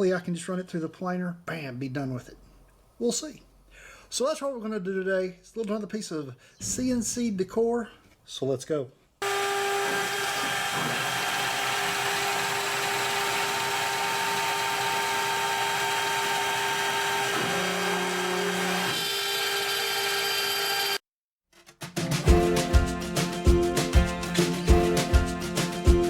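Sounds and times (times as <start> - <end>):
router spindle cutting wood: 9.2 - 21.0
background music: 21.9 - 26.0.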